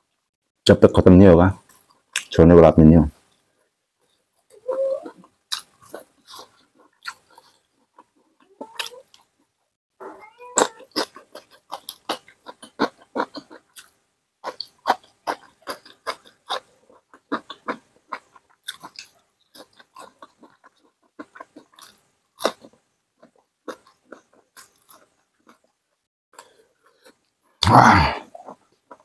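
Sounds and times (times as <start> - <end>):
chewing with lip smacks: 4.4 - 9.4, 10.6 - 25.8.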